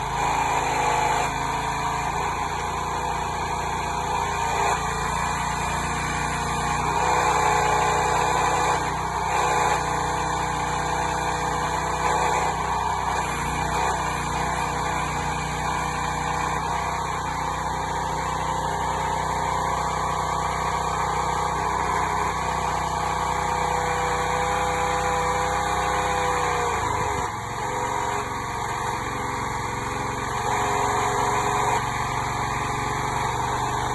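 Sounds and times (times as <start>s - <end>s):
small engine running steadily: 0.0s - 33.9s.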